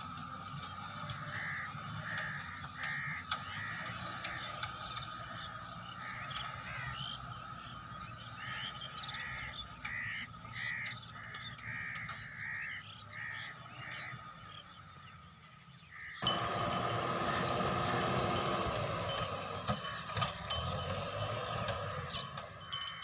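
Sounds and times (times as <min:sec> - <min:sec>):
crow cawing: 0:01.1 - 0:04.6, 0:05.8 - 0:07.7, 0:08.4 - 0:14.2.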